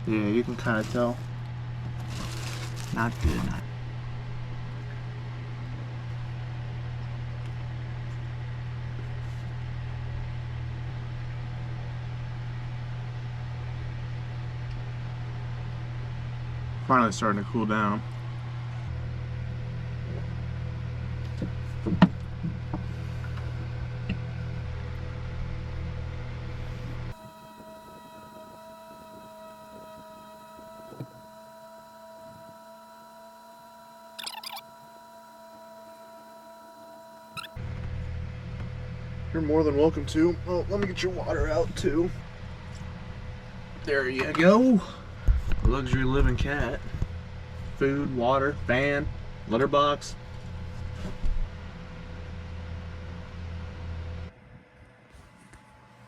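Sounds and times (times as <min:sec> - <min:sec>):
motor humming: 0:00.0 - 0:07.6, 0:17.7 - 0:54.3
rustling clatter: 0:00.6 - 0:03.6.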